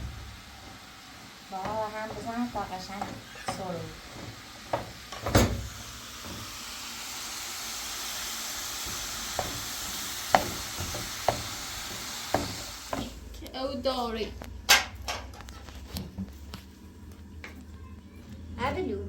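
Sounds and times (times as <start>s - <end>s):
food sizzling in oil: 0.0s - 13.3s.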